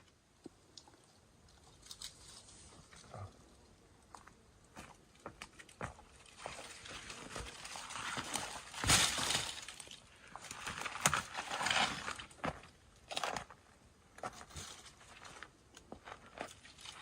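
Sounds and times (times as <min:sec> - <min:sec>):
branches rustling: 0:00.7 - 0:03.8, 0:04.8 - 0:13.4.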